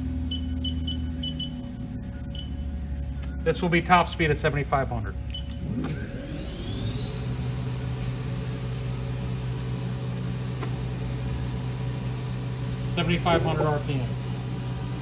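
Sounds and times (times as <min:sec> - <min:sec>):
low hum: 0:00.0 - 0:15.0
machine spindle whine: 0:05.4 - 0:15.0.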